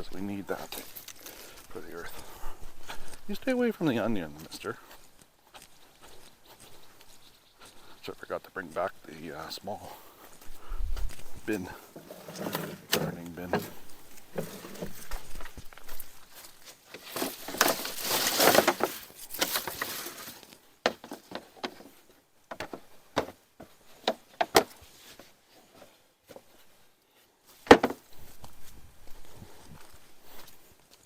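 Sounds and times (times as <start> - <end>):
rustling: 8.7 - 26.8.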